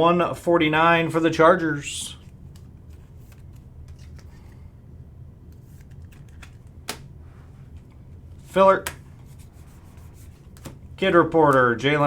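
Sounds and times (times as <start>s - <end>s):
low steady hum: 0.0s - 12.0s
trading cards flipped through: 2.2s - 4.6s, 5.5s - 11.8s.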